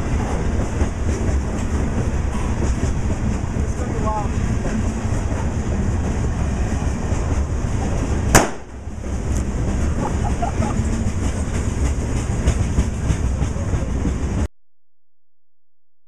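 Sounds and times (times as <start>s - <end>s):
freight train wheels clattering: 0.0s - 14.5s
sharp crack: 8.3s - 8.8s.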